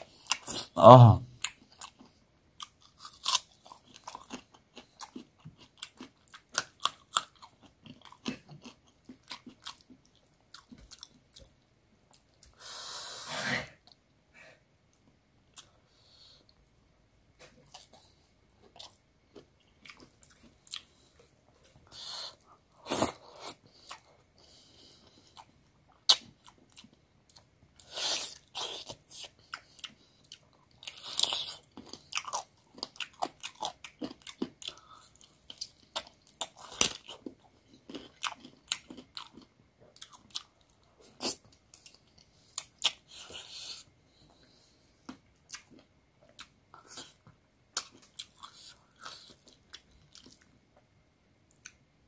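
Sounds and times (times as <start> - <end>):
person chewing and biting: 1.4 - 11.5, 18.6 - 21.2, 25.3 - 43.8, 45.1 - 50.5.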